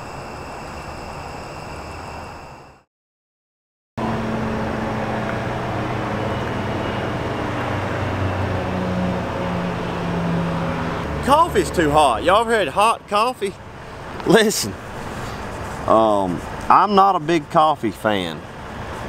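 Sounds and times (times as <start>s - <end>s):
steady hum: 0.0s - 2.8s
traffic: 0.0s - 2.8s, 4.0s - 19.0s.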